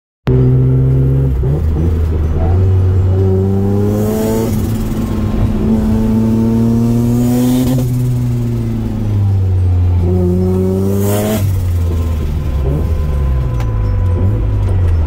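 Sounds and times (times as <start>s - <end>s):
rotary engine accelerating: 0.3s - 15.0s.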